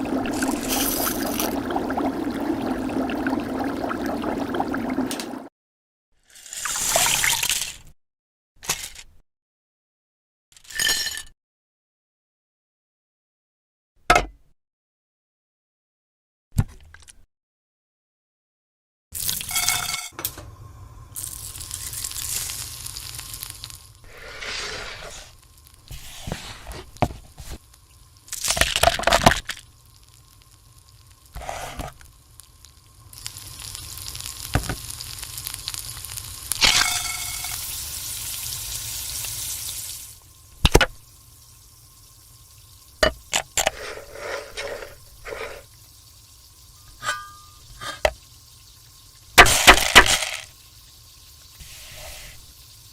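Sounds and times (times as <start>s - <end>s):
food sizzling in a pan: 0.0s - 4.4s, 19.2s - 52.9s.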